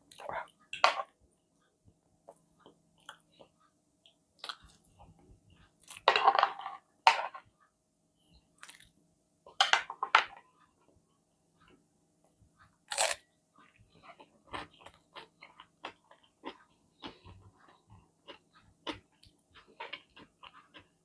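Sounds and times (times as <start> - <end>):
person chewing crunchy food: 12.8 - 21.0.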